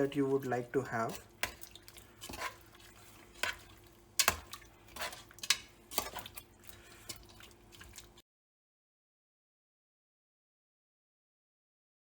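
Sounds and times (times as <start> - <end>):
metal spoon scraping a pan: 0.0 - 8.2.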